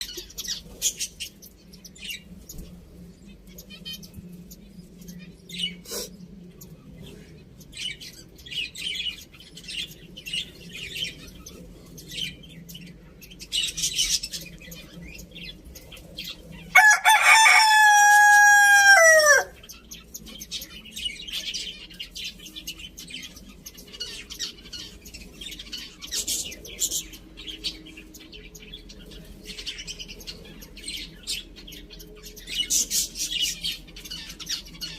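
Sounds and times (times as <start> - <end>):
rooster crowing: 16.8 - 19.6.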